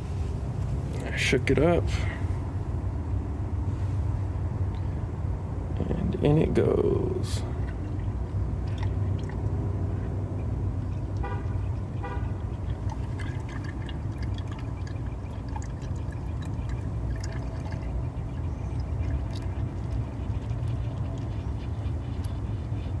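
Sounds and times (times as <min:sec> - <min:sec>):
steady low rumble: 0:00.0 - 0:23.0
oil glugging from a bottle: 0:07.4 - 0:22.5.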